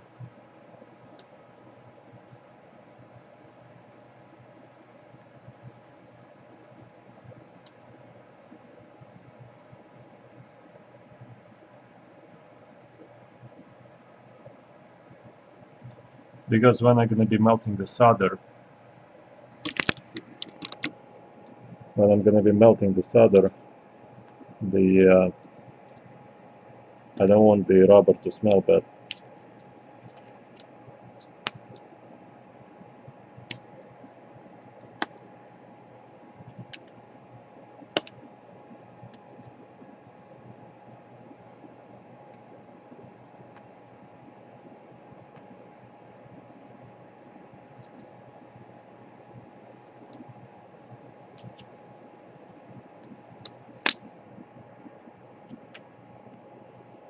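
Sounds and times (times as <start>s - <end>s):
faint steady hum: 0.0s - 57.0s
sharp click: 19.6s - 20.9s.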